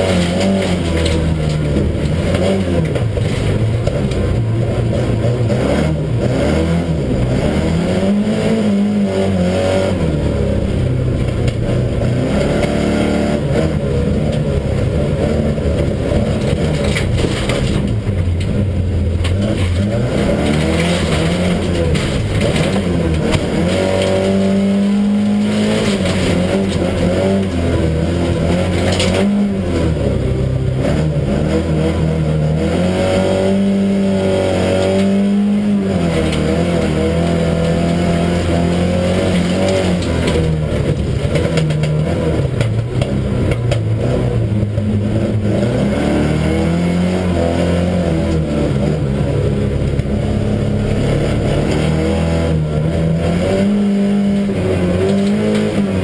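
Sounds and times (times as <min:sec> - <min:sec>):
race car engine revving: 0:00.0 - 0:56.0
tyre and track noise: 0:00.0 - 0:56.0.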